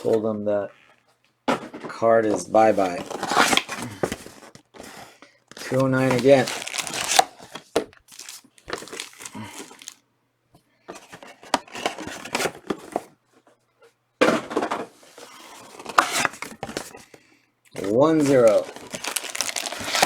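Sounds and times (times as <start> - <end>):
foil wrappers crinkling and tearing: 2.6 - 10.0, 17.8 - 20.0.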